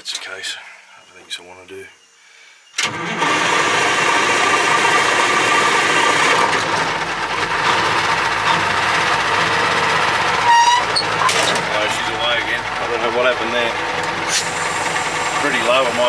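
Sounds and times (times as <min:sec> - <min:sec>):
diesel truck engine running: 0:02.8 - 0:16.0.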